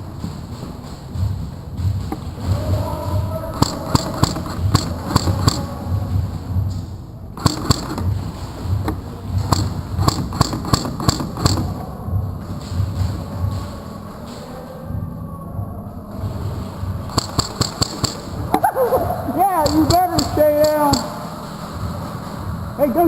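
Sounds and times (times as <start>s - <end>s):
low thumping: 0.0s - 23.0s
airsoft guns firing: 7.4s - 12.0s, 17.0s - 23.0s.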